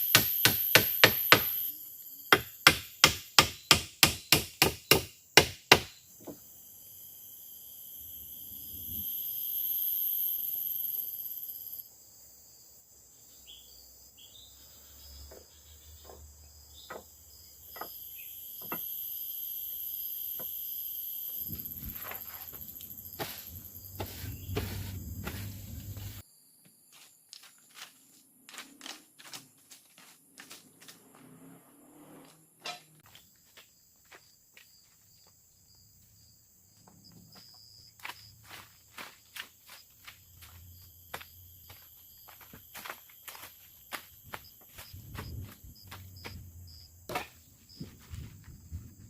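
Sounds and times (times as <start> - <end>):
forest insects buzzing: 0.0 - 49.0
tool blows on wood: 21.5 - 26.2.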